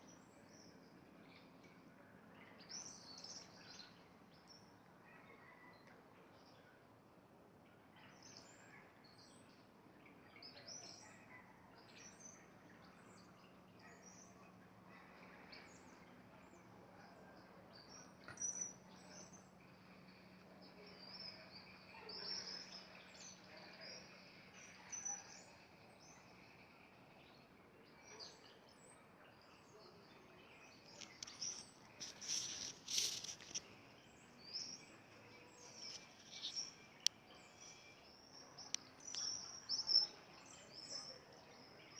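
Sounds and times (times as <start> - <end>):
small birds chirping: 8.0 - 41.9.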